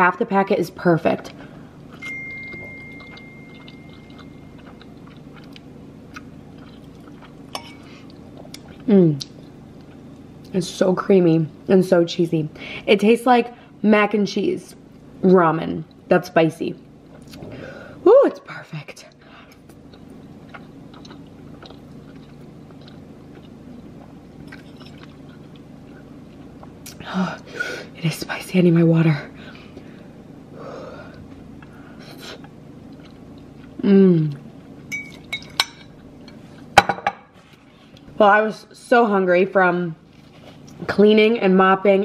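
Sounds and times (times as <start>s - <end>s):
low steady hum: 0.0s - 42.0s
faint ringing tone: 2.0s - 4.9s
person chewing noodles: 2.5s - 10.1s, 19.5s - 27.0s, 31.1s - 35.4s
fork clinking in ceramic bowl: 7.6s - 7.8s, 34.9s - 35.9s.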